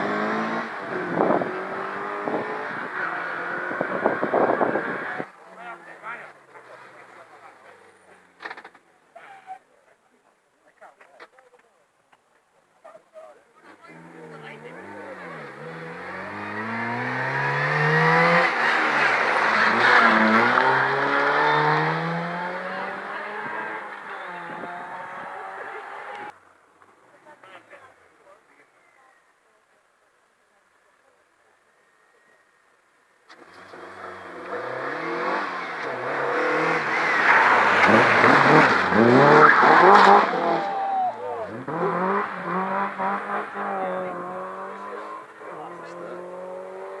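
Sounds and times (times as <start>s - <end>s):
rally car accelerating past: 0.0s - 5.3s, 13.9s - 26.3s, 33.4s - 47.0s.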